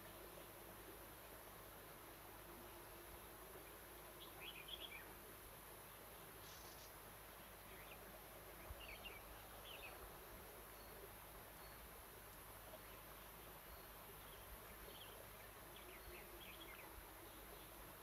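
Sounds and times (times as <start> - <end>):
steady low hiss: 0.0 - 18.0
faint bird chirps: 3.6 - 5.2, 6.4 - 7.0, 7.6 - 12.0, 12.7 - 18.0.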